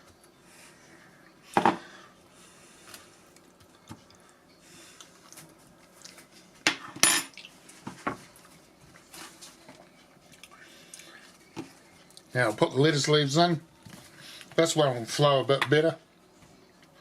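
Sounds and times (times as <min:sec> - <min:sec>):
cutlery and dishes clinking: 0:06.7 - 0:07.4.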